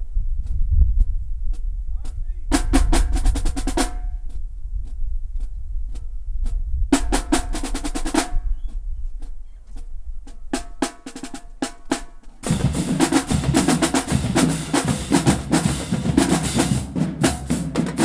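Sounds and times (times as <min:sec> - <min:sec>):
heavy bass drum: 0:00.0 - 0:09.9, 0:10.6 - 0:18.0
fast drum rolls: 0:00.4 - 0:05.2, 0:06.5 - 0:18.0.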